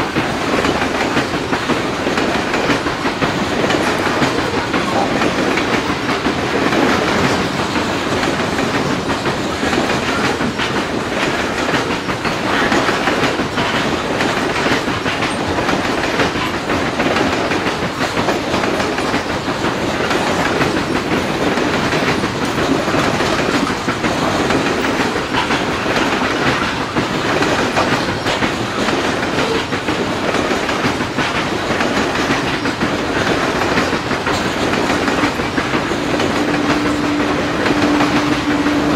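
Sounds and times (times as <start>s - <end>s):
freight train wheels rolling on rail: 0.0s - 38.9s
wheel clacks: 0.0s - 38.9s.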